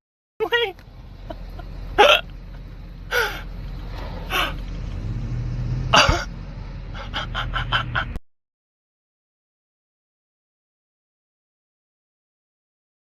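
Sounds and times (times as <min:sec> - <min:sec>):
car cabin rumble: 0:00.4 - 0:05.1
person gasping: 0:03.1 - 0:03.5, 0:04.3 - 0:04.6.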